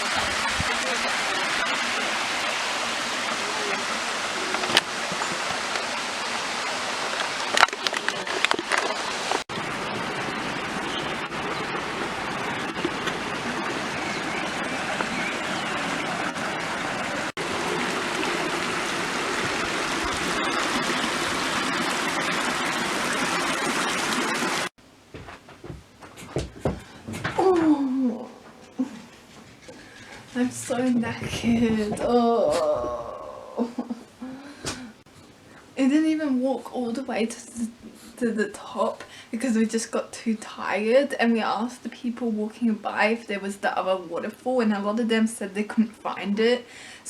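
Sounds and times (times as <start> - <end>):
waterfall rushing: 0.0 - 24.7.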